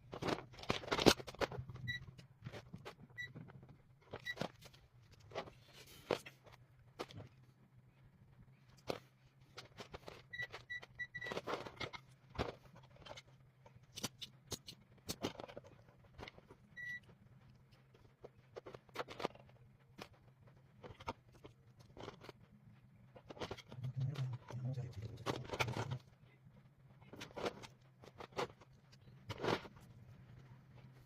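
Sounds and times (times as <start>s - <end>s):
hands handling tools and parts: 0.0s - 7.7s, 8.4s - 26.2s
faint low hum: 0.0s - 31.0s.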